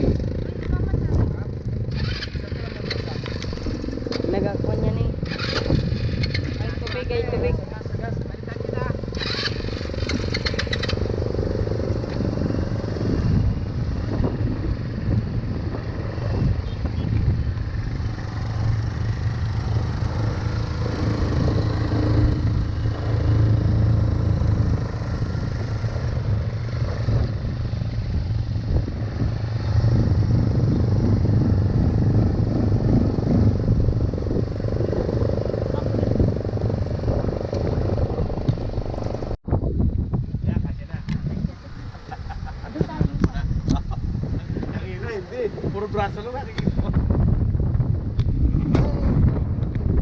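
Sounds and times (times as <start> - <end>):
atv engine running: 0.0 - 39.4.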